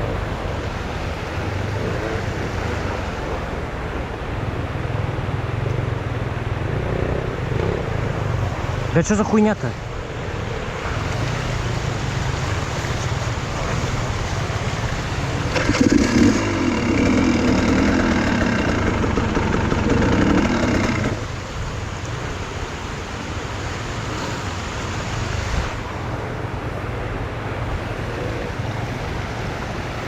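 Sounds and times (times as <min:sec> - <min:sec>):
motorcycle engine revving: 0:06.6 - 0:08.9, 0:10.0 - 0:22.0.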